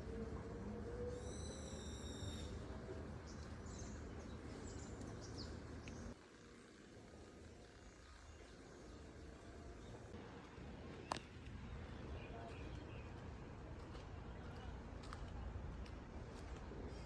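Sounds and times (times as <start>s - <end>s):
faint bird chirps: 0.9s - 6.1s.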